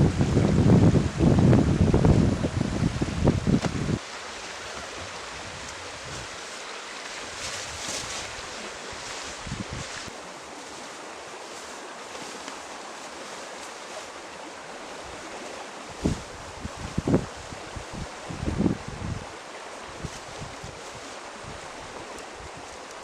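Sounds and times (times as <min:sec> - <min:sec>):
stream rushing: 0:00.0 - 0:23.0
faint rustles: 0:03.5 - 0:14.3.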